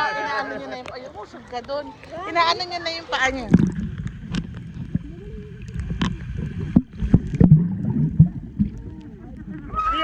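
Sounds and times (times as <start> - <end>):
water splashing: 0.0 - 10.0
steady low rumble: 2.4 - 9.7.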